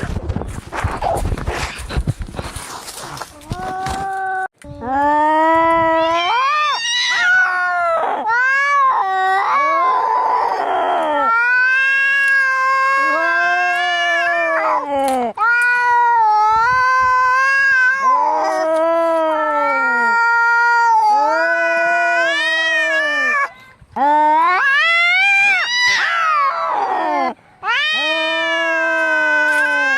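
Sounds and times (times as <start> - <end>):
cats yowling: 5.8 - 23.5, 24.2 - 29.9.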